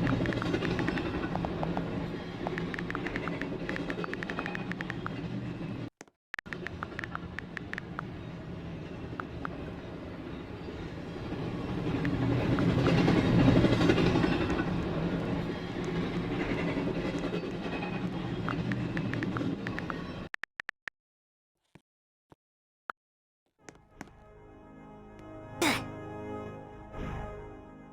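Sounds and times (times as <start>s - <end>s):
rail clicks: 0.0s - 5.5s, 6.5s - 20.2s
train passing rumble: 0.0s - 5.9s, 6.5s - 20.2s.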